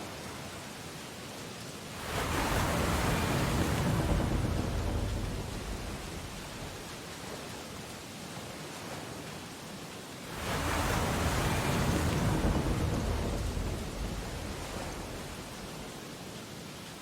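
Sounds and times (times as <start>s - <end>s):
surf hissing: 2.0s - 7.0s, 10.3s - 16.2s
wave breaking: 2.0s - 7.1s, 10.3s - 16.2s.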